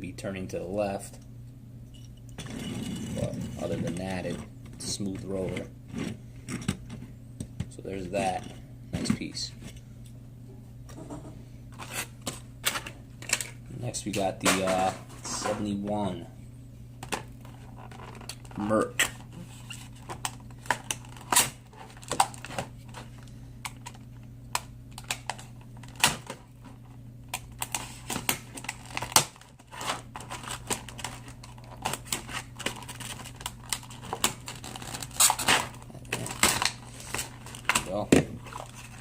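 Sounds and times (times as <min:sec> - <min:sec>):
plastic blister pack crackling: 0:27.3 - 0:39.0.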